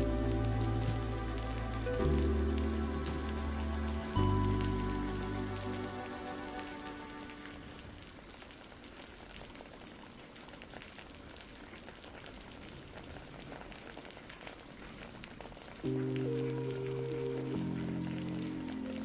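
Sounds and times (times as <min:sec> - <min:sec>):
soft musical chords: 0:00.0 - 0:07.8, 0:15.9 - 0:19.0
steady rain: 0:00.0 - 0:19.0.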